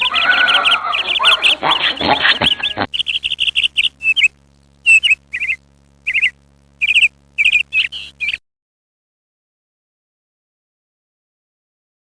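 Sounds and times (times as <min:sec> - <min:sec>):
bird chirping loudly: 0:00.0 - 0:04.3, 0:04.9 - 0:08.4
faint steady hum: 0:00.0 - 0:08.4.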